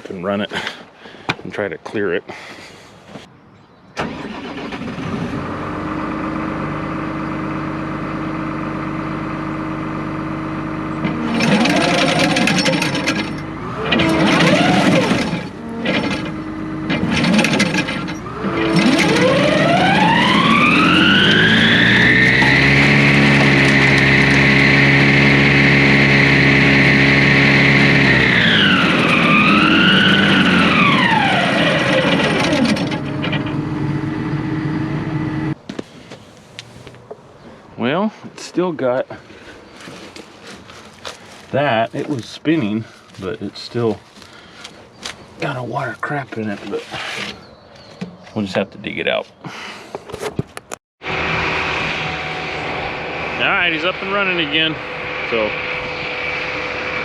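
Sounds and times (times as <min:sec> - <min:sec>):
engine revving: 0:04.0 - 0:35.6, 0:51.0 - 0:57.0
engine starting and idling: 0:04.0 - 0:35.6
header drive whine: 0:05.4 - 0:35.6, 0:51.0 - 0:57.0.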